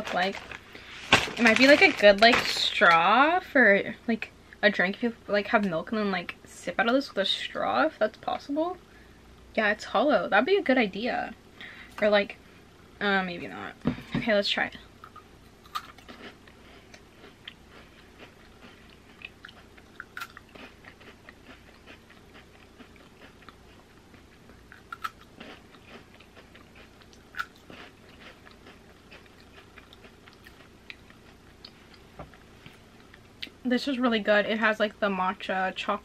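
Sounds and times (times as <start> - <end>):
person chewing crunchy wafer: 15.0 - 33.3.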